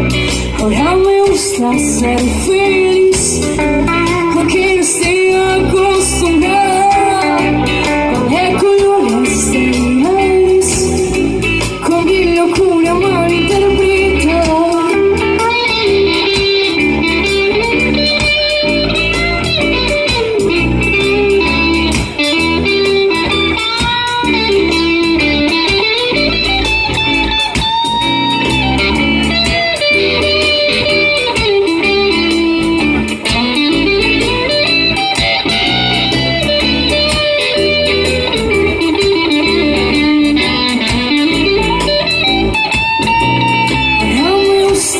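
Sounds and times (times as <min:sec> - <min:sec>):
bass guitar: 0:00.0 - 0:44.9
electric guitar melody: 0:00.0 - 0:44.9
drum beat: 0:14.4 - 0:44.0.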